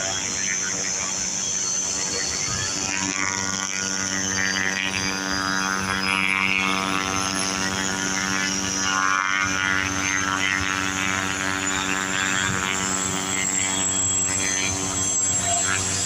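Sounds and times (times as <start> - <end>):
high-pitched turbine whine: 0.0 - 16.0
low engine drone: 0.0 - 16.0.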